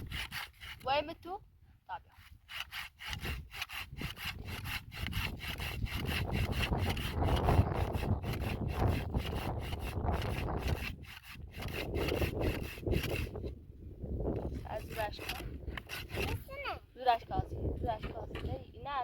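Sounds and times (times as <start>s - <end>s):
rapid rhythmic scraping strokes: 2.2s - 13.3s, 14.7s - 16.5s.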